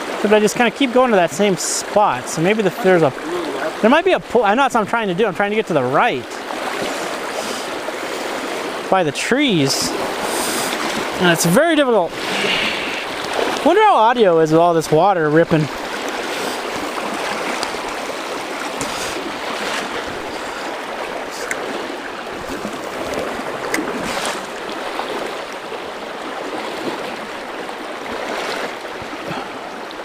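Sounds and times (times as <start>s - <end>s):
river water rushing: 0.0s - 30.0s.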